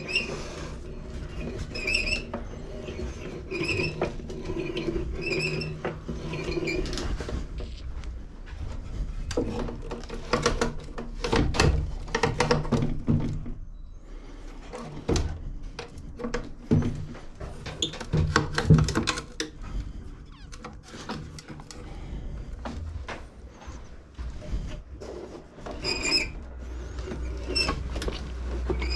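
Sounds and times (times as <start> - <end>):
short squeaks: 20.2 - 21.0.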